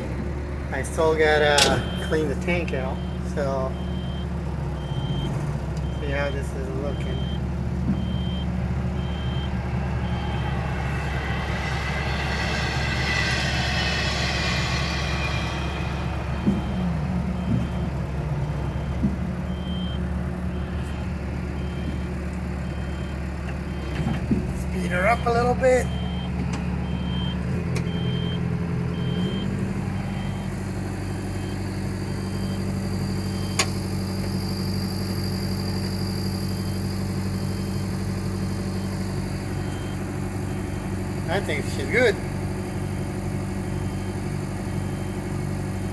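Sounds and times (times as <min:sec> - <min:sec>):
excavator diesel engine running: 0:00.0 - 0:45.9
high whine: 0:00.8 - 0:05.0, 0:05.8 - 0:42.2
short high beeps: 0:01.6 - 0:02.3.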